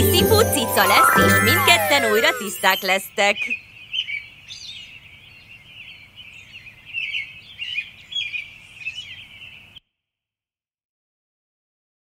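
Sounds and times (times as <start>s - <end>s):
small birds chirping: 1.6s - 9.8s.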